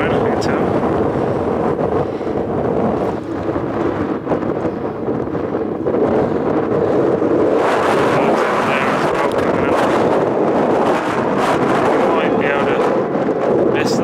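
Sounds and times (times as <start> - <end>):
wind on microphone: 0.0 - 14.0.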